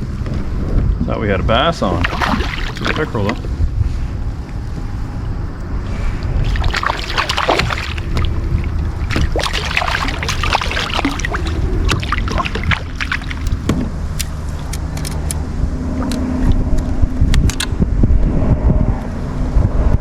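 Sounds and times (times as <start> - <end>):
low rumble: 0.0 - 20.0
water splashing: 1.6 - 3.8, 6.3 - 15.1.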